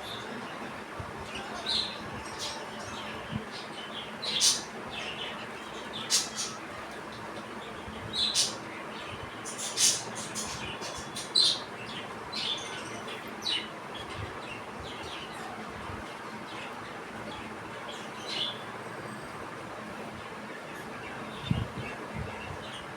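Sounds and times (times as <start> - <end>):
budgerigars chirping: 4.1 - 6.6, 9.4 - 12.8.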